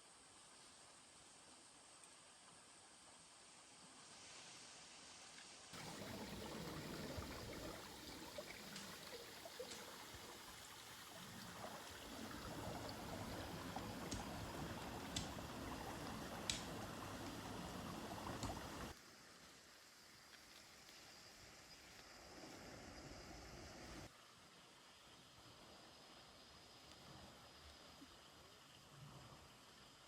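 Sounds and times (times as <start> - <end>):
running water trickling: 5.7 - 19.0.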